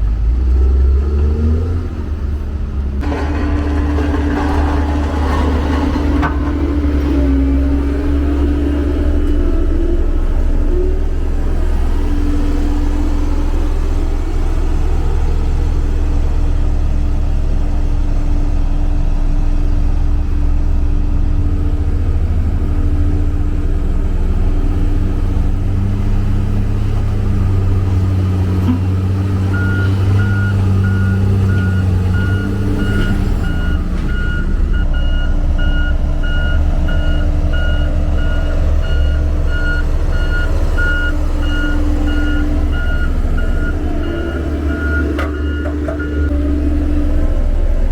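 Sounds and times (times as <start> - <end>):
heavy diesel engine droning: 0.0 - 47.9
reversing alarm beeping: 29.5 - 46.4.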